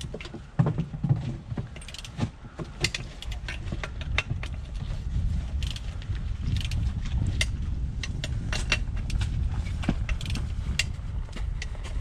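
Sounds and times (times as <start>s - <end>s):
metal tools clicking on bolts: 1.7s - 2.2s.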